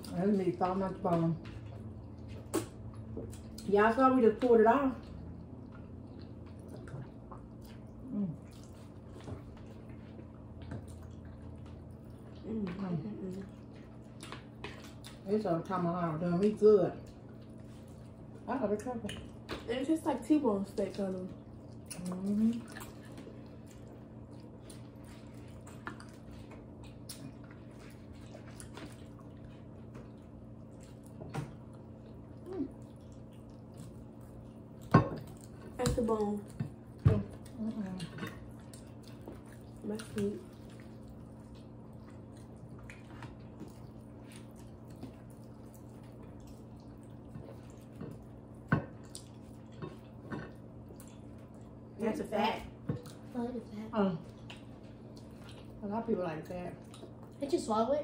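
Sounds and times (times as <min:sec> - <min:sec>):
steady low hum: 0:00.0 - 0:58.0
wet chewing mouth sounds: 0:05.0 - 0:15.3, 0:20.8 - 0:52.0, 0:52.7 - 0:55.8, 0:56.7 - 0:57.7.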